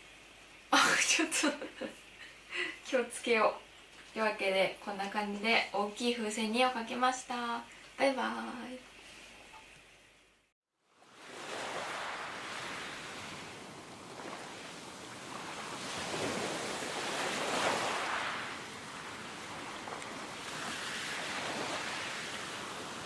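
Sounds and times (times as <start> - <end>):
ocean waves washing in: 10.8 - 23.0.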